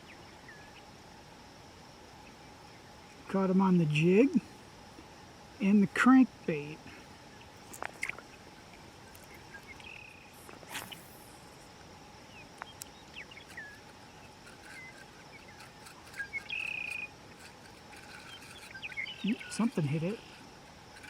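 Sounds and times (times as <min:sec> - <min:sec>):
insect chorus drone: 0:00.0 - 0:21.0
bird chirps and calls: 0:18.1 - 0:20.4.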